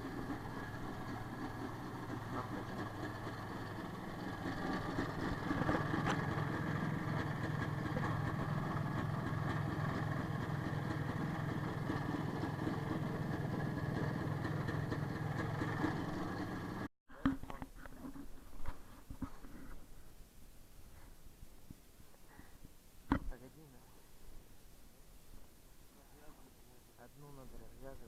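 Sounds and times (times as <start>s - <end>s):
motorcycle engine idling: 0.0s - 17.4s.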